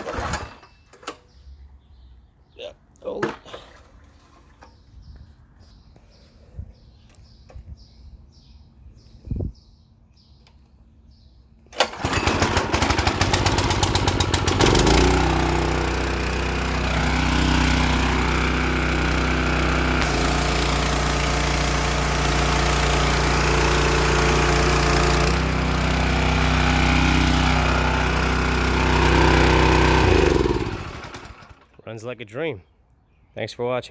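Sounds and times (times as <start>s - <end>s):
small gasoline engine running: 11.8s - 31.8s.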